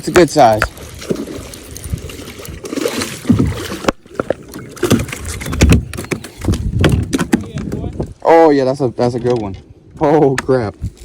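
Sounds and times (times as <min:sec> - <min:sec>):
water splashing: 0:00.0 - 0:07.8
knocks and thumps on kayak hull: 0:02.7 - 0:08.1.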